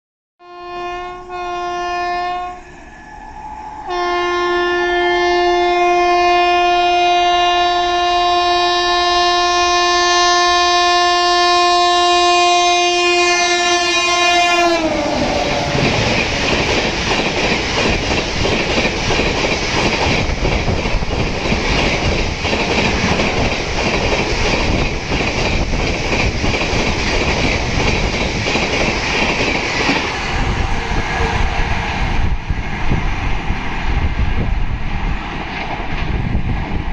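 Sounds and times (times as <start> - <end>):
train horn blasts: 0.4 - 16.7
train coaches rushing and clattering: 14.2 - 36.9.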